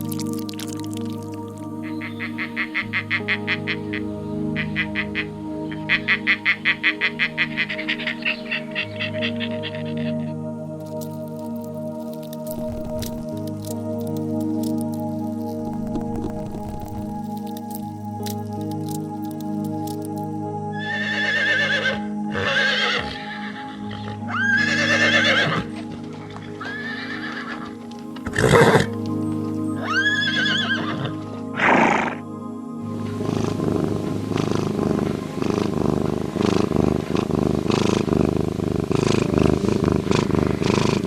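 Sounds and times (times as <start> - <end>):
background music: 0.0 - 41.0
horse neighing: 20.8 - 25.7, 26.6 - 28.9, 29.8 - 32.2.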